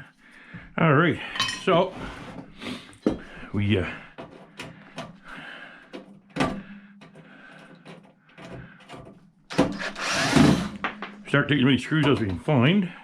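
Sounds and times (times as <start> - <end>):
hand tools clattering on workbench: 10.7 - 11.4.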